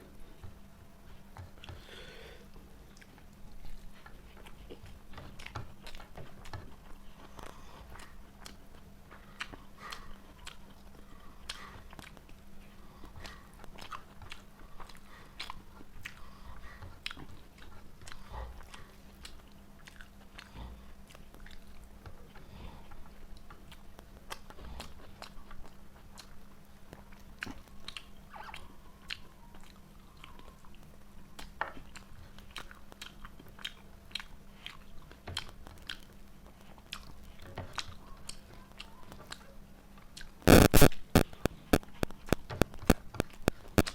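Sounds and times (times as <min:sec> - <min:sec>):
low steady hum: 0:00.0 - 0:43.9
person chewing food: 0:00.0 - 0:43.9
mouth clicks: 0:40.1 - 0:43.9.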